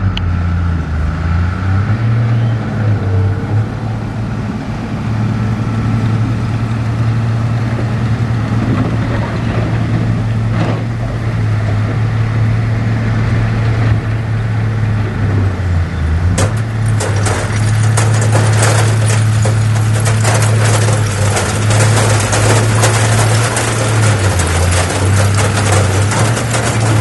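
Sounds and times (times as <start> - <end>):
heavy diesel engine running: 0.0 - 27.0
metallic clanking and rattling: 16.2 - 27.0.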